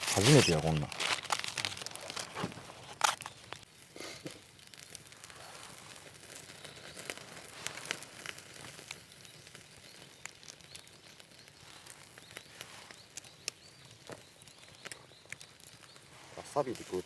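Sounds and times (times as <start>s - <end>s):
plastic packaging crinkling and tearing: 0.0s - 9.0s.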